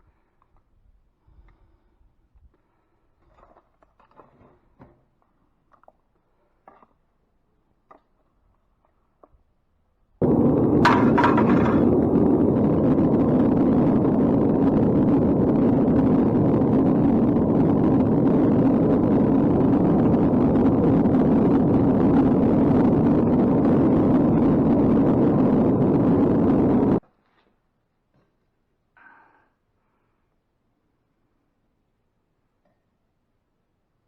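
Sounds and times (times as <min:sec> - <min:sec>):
gas burner rushing: 0:10.2 - 0:27.0.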